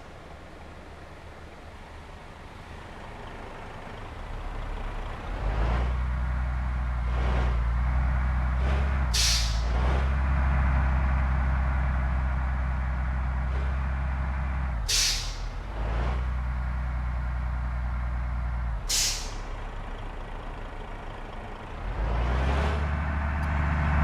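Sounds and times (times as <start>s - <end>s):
bus diesel engine droning: 0.0s - 24.0s
air-brake hiss: 9.2s - 9.8s, 14.9s - 15.6s, 18.9s - 19.6s.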